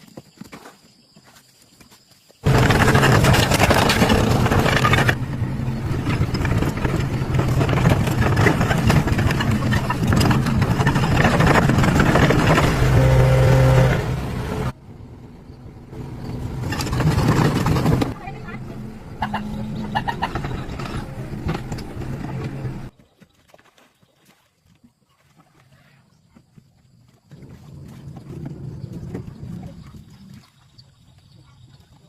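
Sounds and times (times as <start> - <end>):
car engine running roughly: 2.4 - 14.8.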